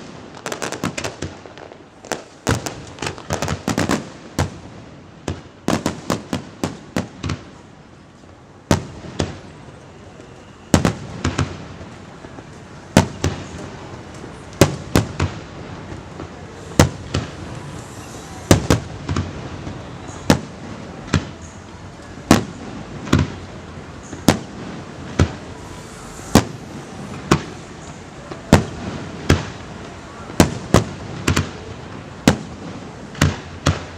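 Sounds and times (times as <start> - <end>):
fireworks bursting with echo: 0.0 - 33.9.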